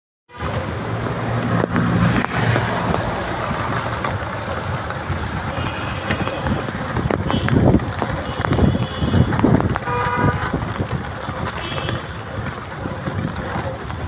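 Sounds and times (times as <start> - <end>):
rain and wet tyres hissing: 0.3 - 14.0
vehicle engines running: 0.3 - 14.0
low engine hum: 0.4 - 9.7.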